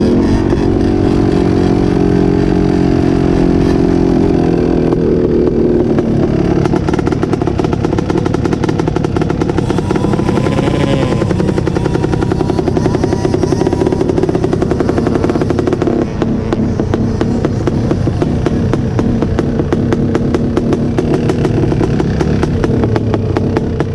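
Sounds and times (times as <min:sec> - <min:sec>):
off-road vehicle engine running: 0:00.0 - 0:23.9.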